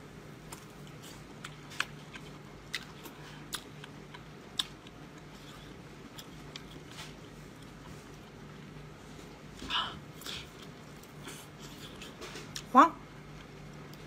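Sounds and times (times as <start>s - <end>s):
faint low hum: 0.0s - 14.0s
wet chewing clicks and smacks: 0.5s - 5.4s.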